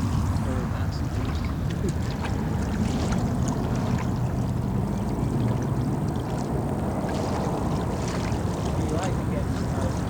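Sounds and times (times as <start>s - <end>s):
flowing water rushing: 0.0s - 10.0s.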